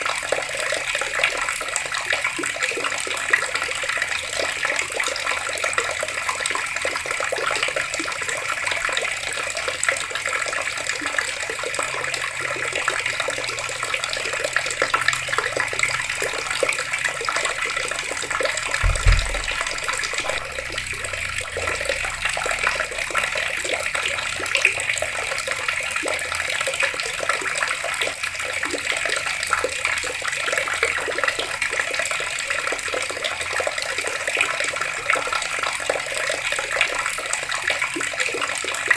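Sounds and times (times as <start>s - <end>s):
water running from taps: 0.0s - 38.9s
low thump: 18.8s - 22.0s.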